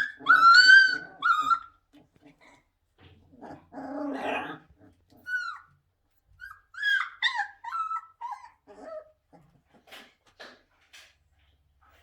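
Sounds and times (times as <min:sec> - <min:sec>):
puppies whining and yelping: 0:00.0 - 0:01.9, 0:04.2 - 0:09.4
puppy growling: 0:00.0 - 0:05.6, 0:07.4 - 0:10.6.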